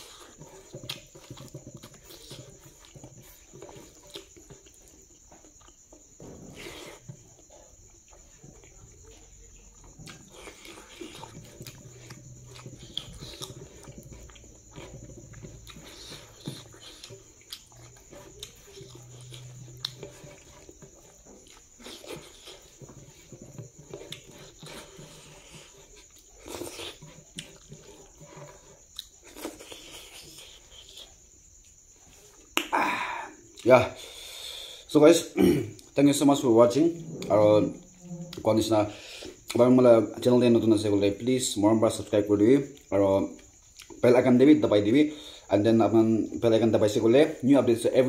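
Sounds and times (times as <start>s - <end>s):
chewing and lip smacks: 7.0s - 32.7s, 42.7s - 44.0s.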